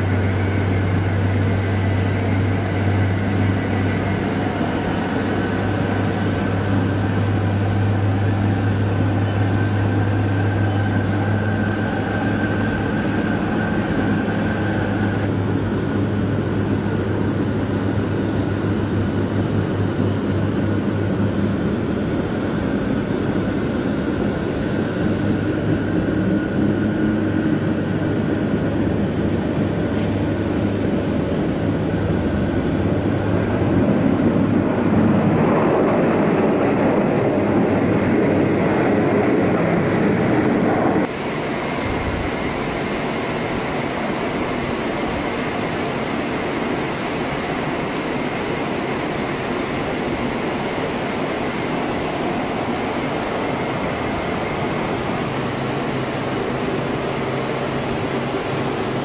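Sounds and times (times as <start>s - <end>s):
jet engines droning and whining: 0.0s - 59.0s.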